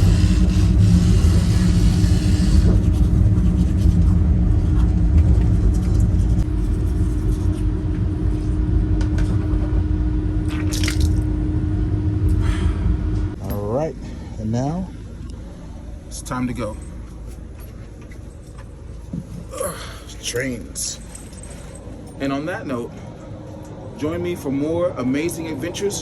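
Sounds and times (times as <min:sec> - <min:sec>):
electric toothbrush humming: 0:00.0 - 0:02.9
train rumbling: 0:00.0 - 0:06.5.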